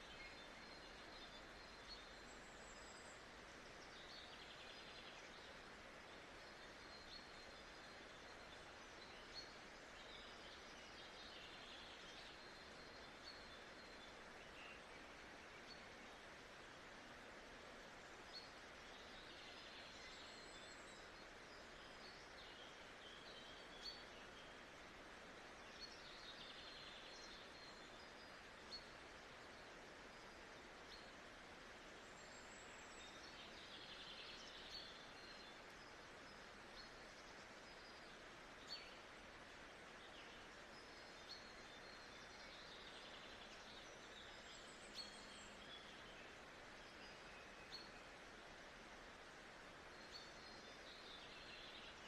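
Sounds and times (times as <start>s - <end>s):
steady hiss: 0.0s - 52.0s
small birds chirping: 17.2s - 52.0s.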